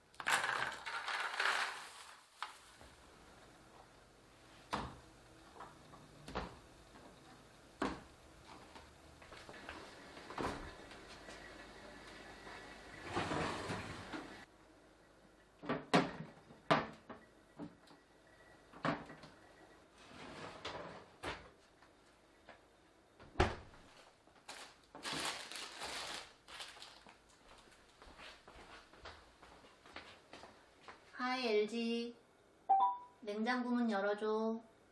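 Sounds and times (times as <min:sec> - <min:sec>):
rustling: 0:00.2 - 0:03.3, 0:23.8 - 0:28.8.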